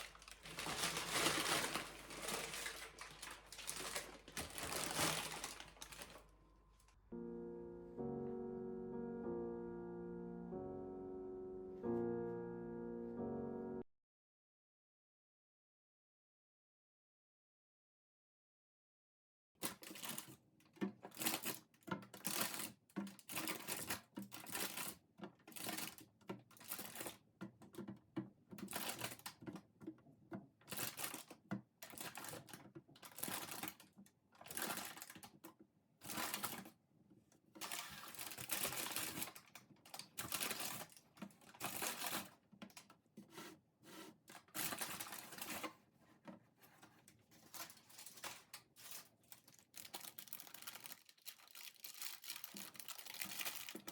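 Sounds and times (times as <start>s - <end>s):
rustling and crinkling handling noise: 0.0s - 7.0s, 19.6s - 53.9s.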